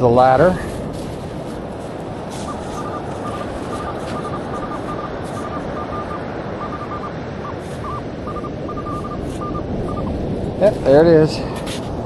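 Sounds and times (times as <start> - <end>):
wind and surf hiss: 0.0 - 12.0
metal detector beeps: 2.3 - 10.2.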